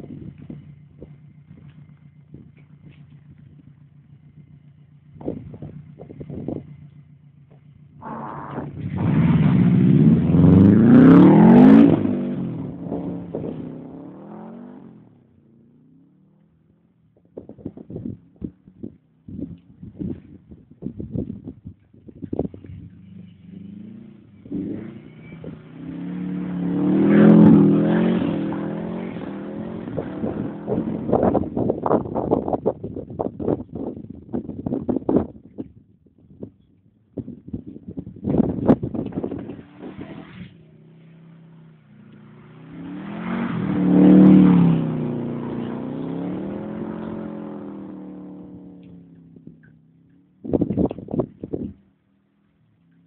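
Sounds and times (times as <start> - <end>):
car engine revving: 0.0 - 16.5, 22.6 - 32.7, 38.2 - 51.8.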